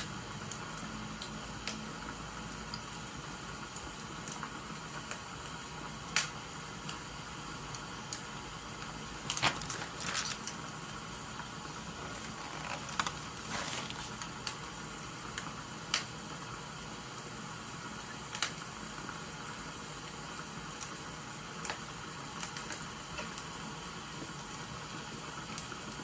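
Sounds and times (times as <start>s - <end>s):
rain hiss: 0.0s - 26.0s
wood fire crackling: 0.0s - 26.0s
rustling bursts: 11.8s - 14.3s.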